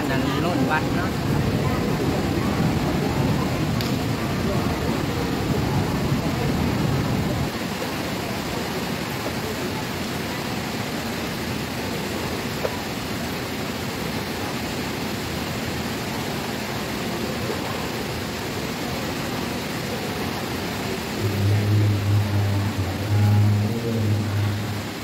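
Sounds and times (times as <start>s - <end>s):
rain on a metal roof: 0.0s - 25.0s
low voice chanting: 19.8s - 25.0s.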